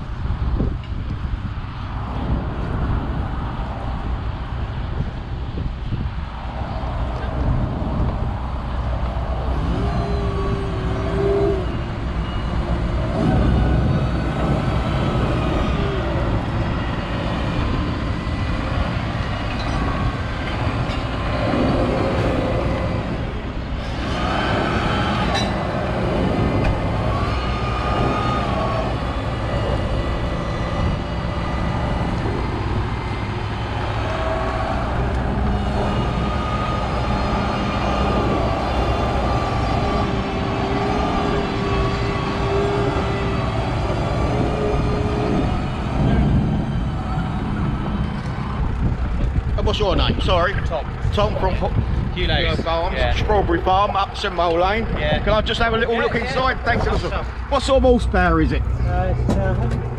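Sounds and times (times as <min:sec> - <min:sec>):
tractor engine running under load: 0:23.0 - 0:54.9.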